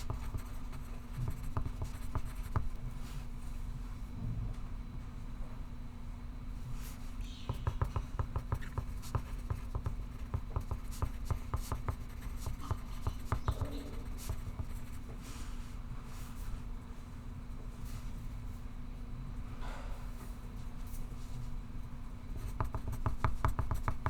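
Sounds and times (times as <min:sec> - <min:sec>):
pencil scratching on paper: 0:00.0 - 0:02.8, 0:06.8 - 0:15.4, 0:22.3 - 0:24.0
steady low hum: 0:00.0 - 0:24.0.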